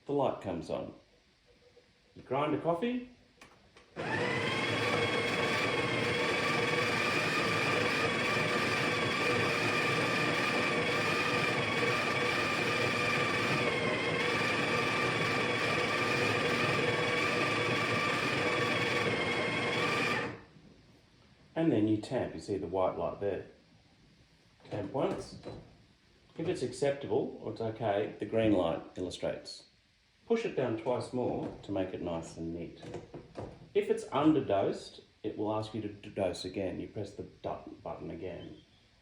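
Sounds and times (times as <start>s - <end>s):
coffee grinder whining: 4.0s - 20.4s.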